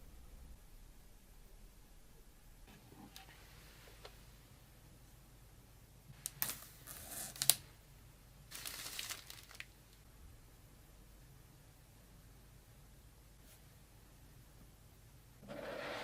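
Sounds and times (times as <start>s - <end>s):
rustling: 8.5s - 10.0s.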